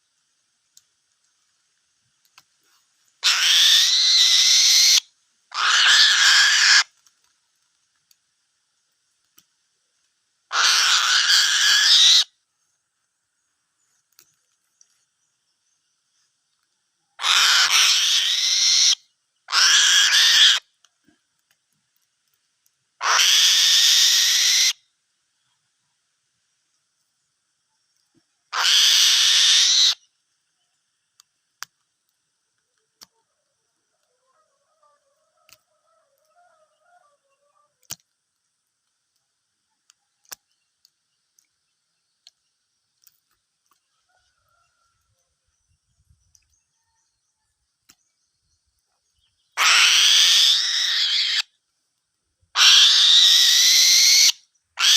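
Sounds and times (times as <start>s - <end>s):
eagle screeching: 3.2s - 6.9s, 10.5s - 12.3s, 17.2s - 20.6s, 23.0s - 24.8s, 28.5s - 30.0s, 49.6s - 51.5s, 52.6s - 54.9s.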